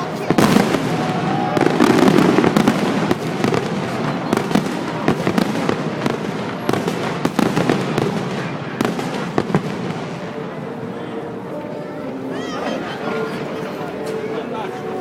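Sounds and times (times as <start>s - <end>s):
fireworks crackling and banging: 0.0s - 11.4s.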